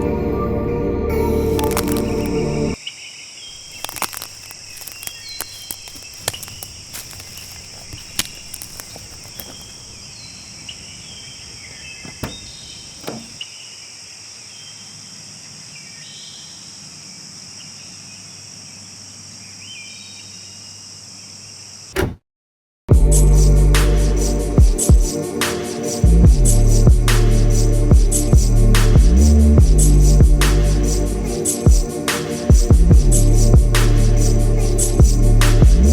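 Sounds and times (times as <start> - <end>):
insects trilling: 1.5 - 21.9
sharp clicks: 1.6 - 2.3
bird chirps: 1.6 - 13.9
loud thump: 22.0 - 22.2.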